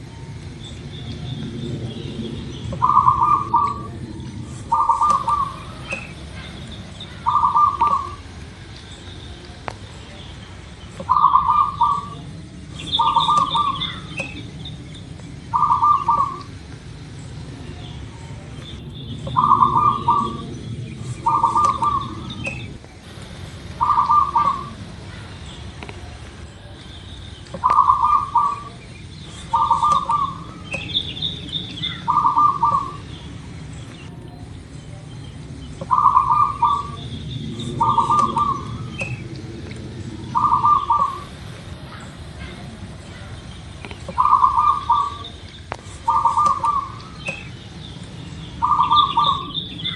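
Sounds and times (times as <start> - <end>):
dove cooing: 0.0 - 8.6, 10.9 - 26.7, 27.5 - 34.6, 35.6 - 47.6, 48.5 - 49.9.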